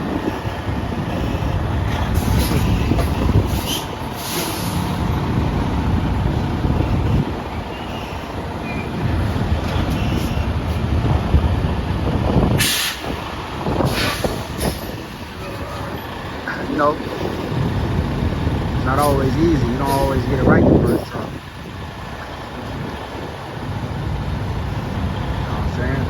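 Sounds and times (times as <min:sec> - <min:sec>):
diesel truck engine running: 0:00.0 - 0:26.0
air brakes hiss: 0:03.5 - 0:05.0, 0:12.6 - 0:13.2, 0:13.8 - 0:15.0.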